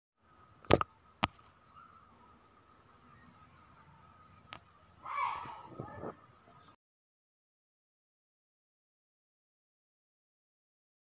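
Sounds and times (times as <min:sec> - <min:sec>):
faint steady tone: 0:00.2 - 0:05.0
small birds chirping: 0:00.2 - 0:06.8
noisy rustle: 0:03.8 - 0:06.4.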